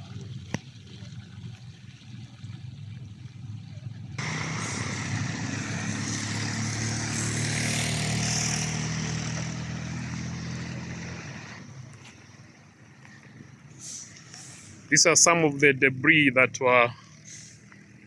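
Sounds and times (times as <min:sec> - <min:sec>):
vehicle passing close by: 0:04.2 - 0:12.0.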